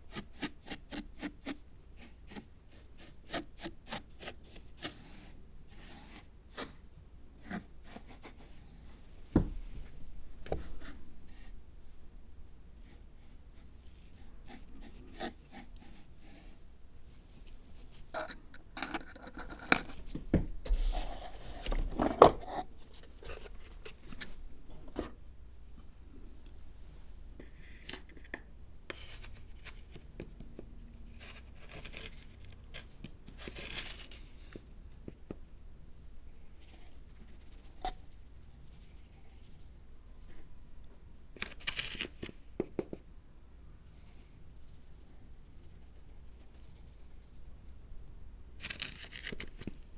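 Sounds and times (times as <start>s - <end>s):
crafting rustles and scrapes: 0.1s - 12.0s, 12.8s - 26.0s, 27.4s - 35.2s, 41.4s - 43.0s, 48.6s - 49.9s.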